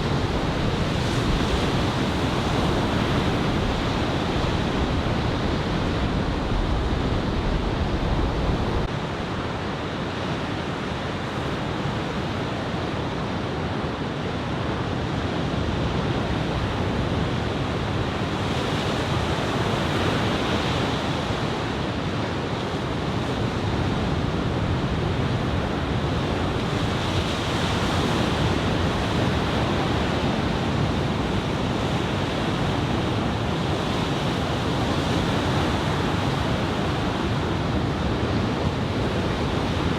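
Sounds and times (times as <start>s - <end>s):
ocean waves breaking: 0.0s - 8.9s
wind buffeting microphone: 0.0s - 8.9s.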